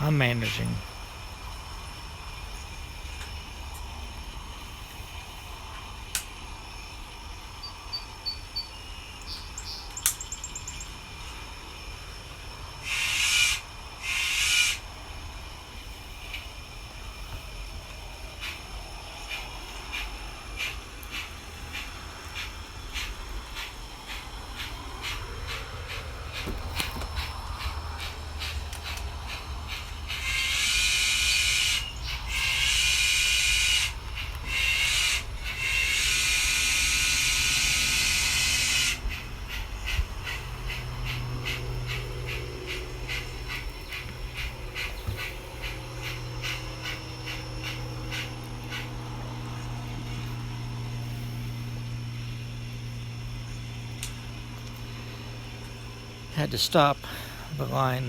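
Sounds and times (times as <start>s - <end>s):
model steam locomotive chuffing: 10.9s - 58.0s
low hum: 36.6s - 58.0s.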